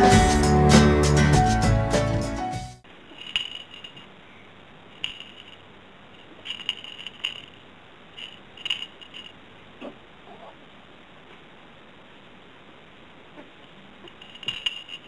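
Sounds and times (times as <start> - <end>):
light sharp clicks and clinks: 14.1 - 15.0.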